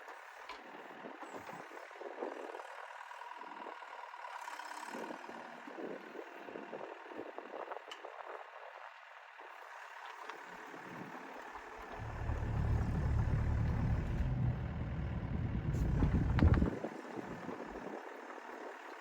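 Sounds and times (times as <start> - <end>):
excavator engine rumbling: 11.6 - 18.9.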